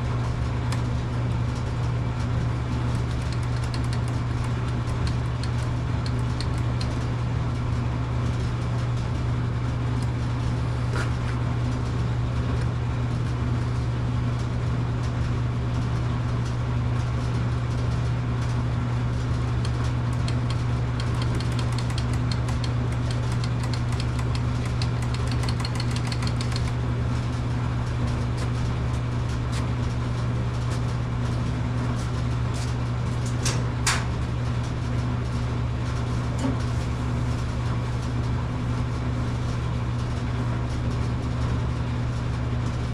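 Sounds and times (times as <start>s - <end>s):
small engine running: 2.8s - 7.2s, 19.2s - 26.9s.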